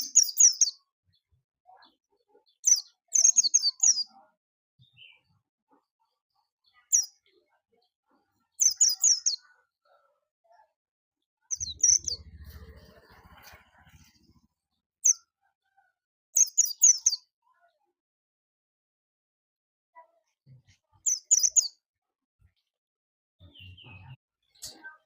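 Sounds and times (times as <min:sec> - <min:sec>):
small bird chirping: 0:00.0 - 0:04.2, 0:04.8 - 0:10.0, 0:11.5 - 0:15.3, 0:16.4 - 0:17.6, 0:20.8 - 0:21.8, 0:23.4 - 0:25.0
low rumble: 0:11.7 - 0:14.4.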